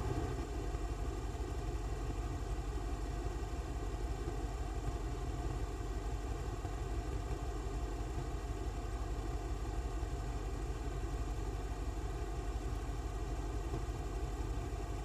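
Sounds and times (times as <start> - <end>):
steady low rumble: 0.0 - 0.9
faint hum: 0.0 - 1.7.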